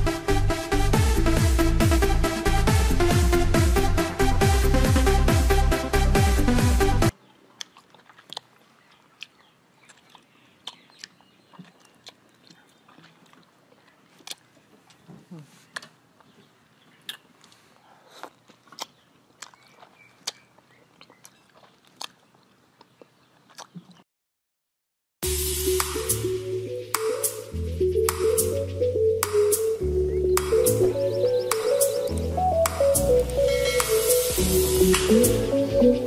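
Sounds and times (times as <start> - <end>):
crisp crunching of mango: 7.2 - 24.0
soft mouth sounds: 7.2 - 24.0.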